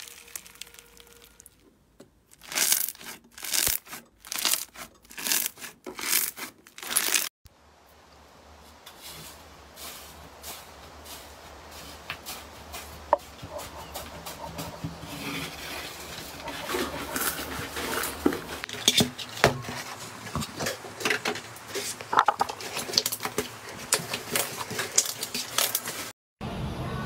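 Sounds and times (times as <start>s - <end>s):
slime squeezed by hand: 0.0s - 1.6s.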